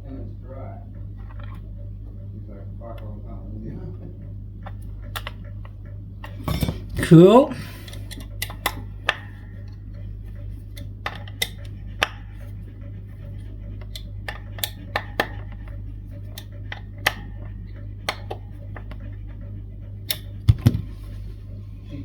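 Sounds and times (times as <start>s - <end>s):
low electrical hum: 0.0s - 22.0s
hand tools clicking and tapping: 7.8s - 10.0s, 10.6s - 12.4s, 13.7s - 19.1s.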